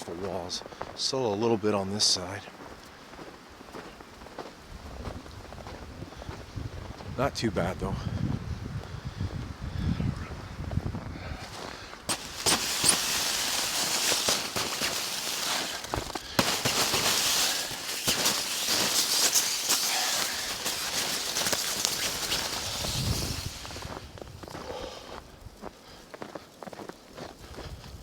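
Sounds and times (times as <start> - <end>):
snow scraping on tent fabric: 11.4 - 24.3.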